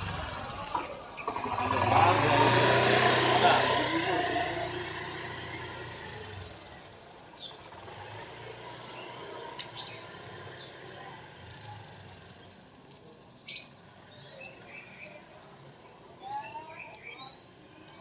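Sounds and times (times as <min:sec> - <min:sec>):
bird singing high chirps: 0:07.4 - 0:18.0.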